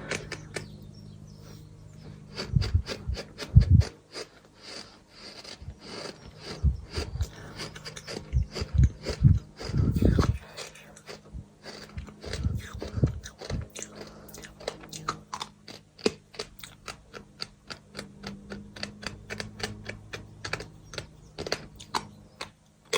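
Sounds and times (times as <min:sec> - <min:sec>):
bird chewing sand chunks: 0:01.4 - 0:22.6
dull low thumps: 0:02.0 - 0:03.9, 0:08.2 - 0:10.4.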